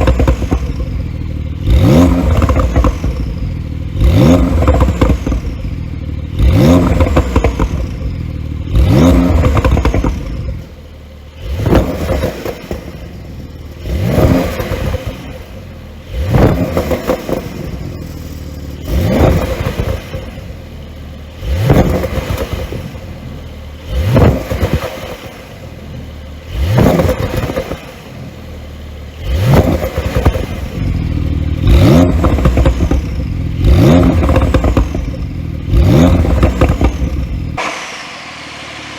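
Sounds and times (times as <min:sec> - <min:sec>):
exhaust crackles and pops: 0:00.0 - 0:38.0
car engine revving: 0:00.0 - 0:38.9.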